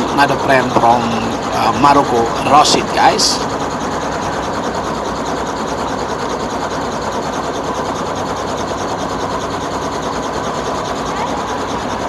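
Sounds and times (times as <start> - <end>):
faint steady tone: 0.0 - 6.3
helicopter engine and rotor noise: 0.0 - 12.0.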